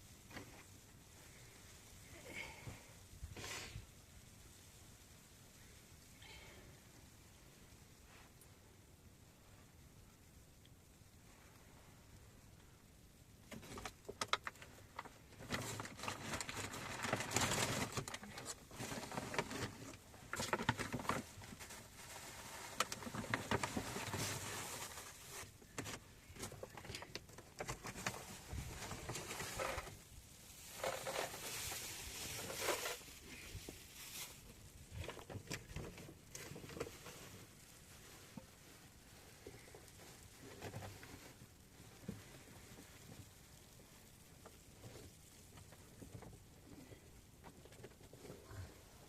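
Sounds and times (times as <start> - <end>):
irregular rustling: 13.4 - 49.0.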